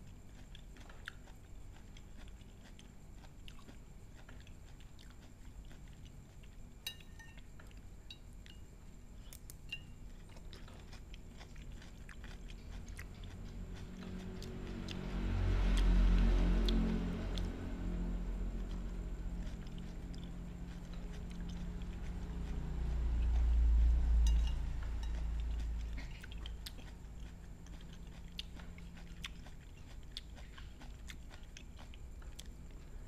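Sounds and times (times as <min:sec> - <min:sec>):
person chewing: 0:00.0 - 0:15.0, 0:18.6 - 0:33.0
spoon clicking on plate: 0:06.8 - 0:07.4.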